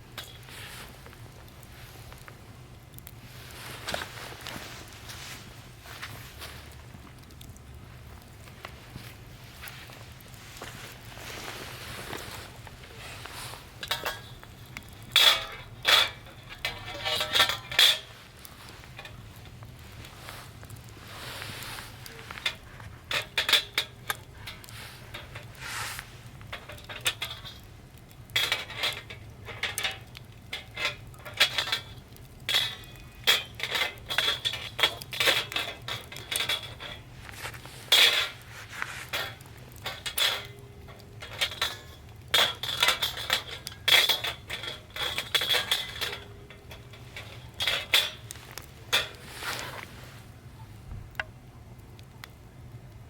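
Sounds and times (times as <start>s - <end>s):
metal camp gear clinking: 9.0s - 50.1s.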